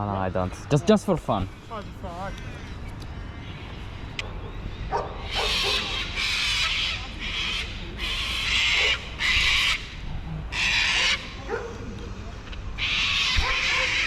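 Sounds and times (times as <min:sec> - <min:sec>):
bird squawking: 0:00.3 - 0:11.5, 0:12.8 - 0:14.0.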